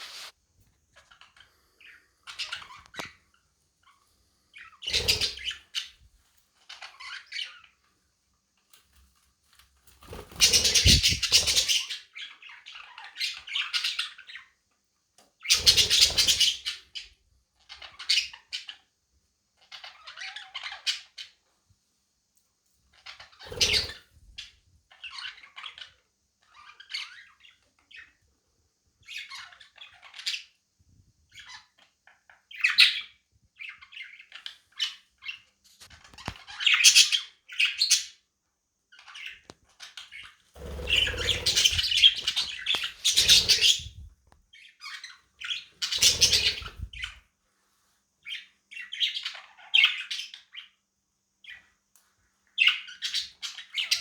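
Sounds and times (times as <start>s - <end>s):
budgerigars chirping and squawking: 1.0s - 3.1s, 4.5s - 5.9s, 10.1s - 14.5s, 15.4s - 18.8s, 19.6s - 21.4s, 23.0s - 28.2s, 29.0s - 30.6s, 31.3s - 35.5s, 36.1s - 38.2s, 39.0s - 47.2s, 48.2s - 50.7s, 52.6s - 54.0s.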